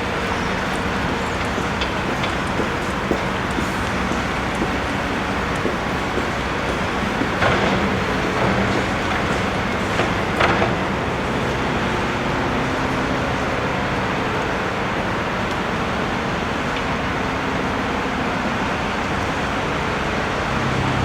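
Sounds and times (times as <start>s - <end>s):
traffic noise: 0.0s - 21.0s.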